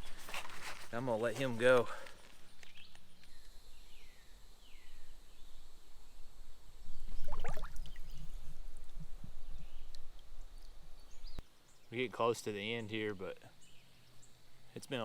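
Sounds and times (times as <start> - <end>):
water splashing and sloshing: 7.1 - 8.2.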